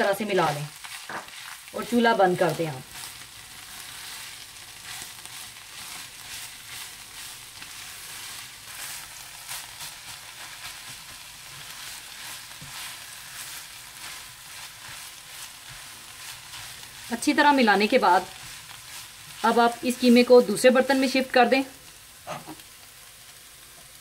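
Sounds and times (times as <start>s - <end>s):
meat sizzling in a pot: 0.0s - 24.0s
spatula scraping a pot: 22.2s - 22.6s.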